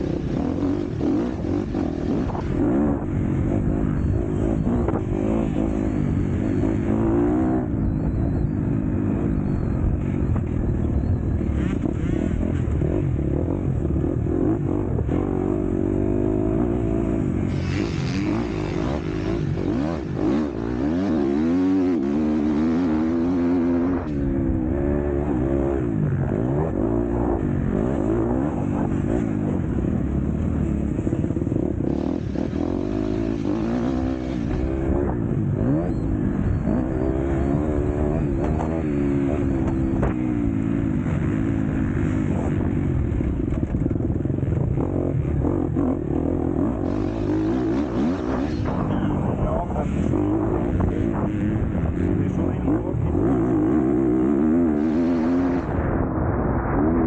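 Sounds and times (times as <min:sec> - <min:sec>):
motocross bike engine revving: 0:00.0 - 0:55.8.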